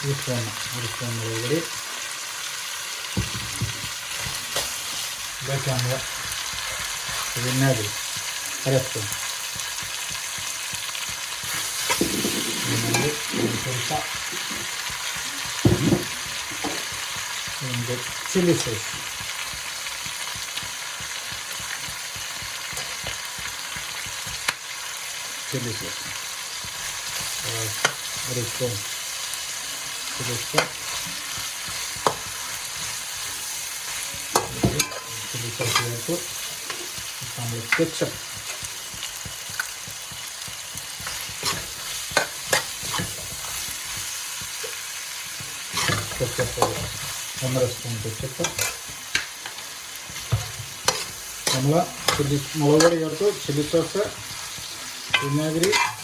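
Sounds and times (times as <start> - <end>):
vegetables sizzling in hot oil: 0.0 - 56.0
spoon knocking against pan: 31.3 - 32.4.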